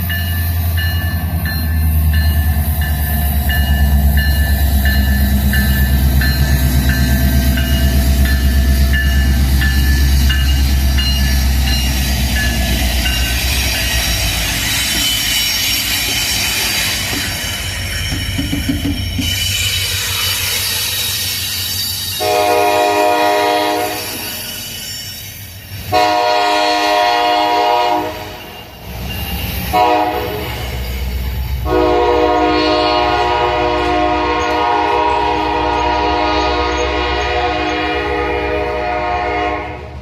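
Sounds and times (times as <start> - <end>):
locomotive rumble: 0.0 - 40.0
locomotive air horn blasts: 22.2 - 24.3, 25.9 - 28.7, 29.7 - 30.7, 31.6 - 40.0.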